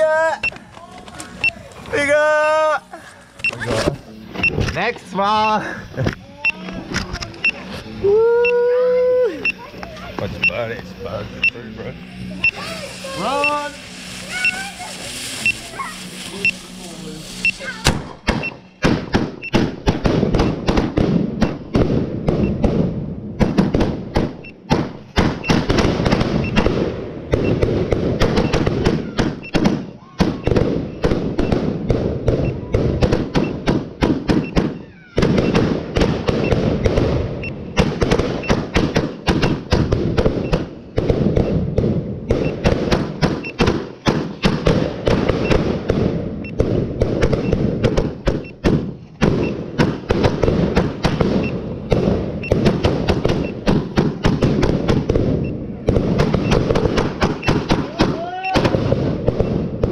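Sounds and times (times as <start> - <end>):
firework barrage bangs and crackles: 9.5 - 59.9.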